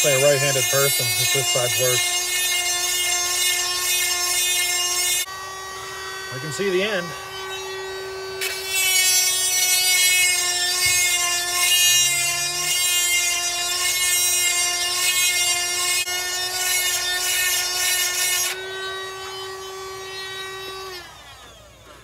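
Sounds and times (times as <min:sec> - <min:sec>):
grinding wheel grinding chain: 0:00.0 - 0:05.3
sharpener motor whining: 0:00.0 - 0:22.0.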